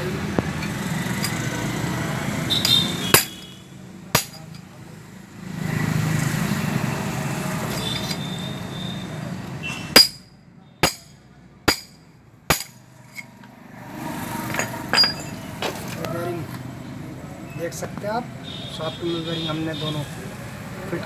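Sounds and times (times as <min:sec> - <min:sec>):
hammer blows on metal: 0:02.6 - 0:03.4.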